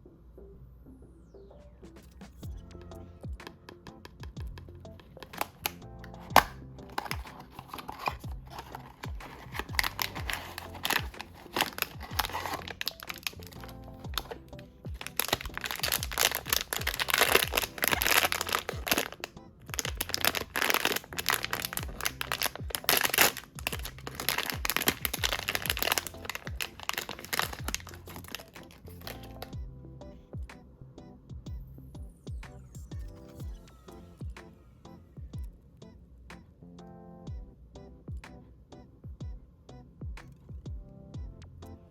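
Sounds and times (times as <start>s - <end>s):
background music: 0.0s - 41.9s
packaging crinkling and tearing: 5.0s - 29.5s
sharp cracks: 15.0s - 29.4s.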